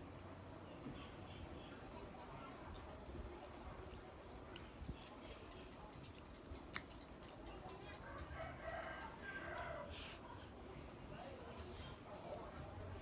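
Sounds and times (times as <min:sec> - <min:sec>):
chewing soft food: 0:02.2 - 0:10.9
mouth clicks: 0:03.9 - 0:08.0.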